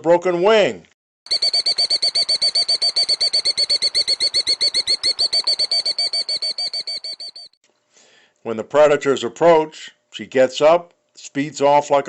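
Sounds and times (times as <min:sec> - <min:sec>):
killdeer trilled alarm call: 0:01.3 - 0:07.5.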